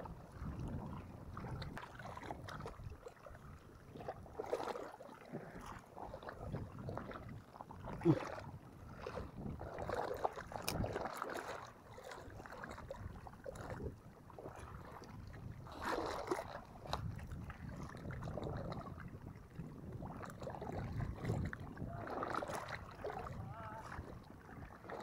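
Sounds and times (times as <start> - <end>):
water sloshing and lapping: 0.0 - 25.0
wind on microphone: 0.0 - 25.0.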